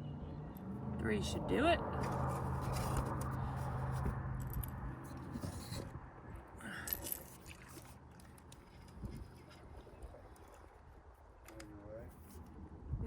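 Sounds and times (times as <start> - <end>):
fishing gear scraping and clicking: 2.0 - 5.9, 6.8 - 10.7.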